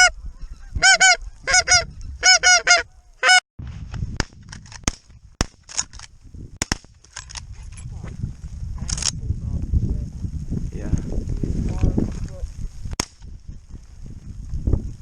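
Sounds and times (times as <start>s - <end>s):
geese calling: 0.0s - 3.4s.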